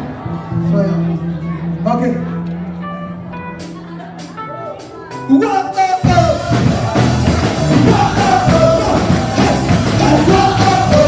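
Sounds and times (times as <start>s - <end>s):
worship band playing: 0.0s - 11.0s
person singing: 5.2s - 11.0s.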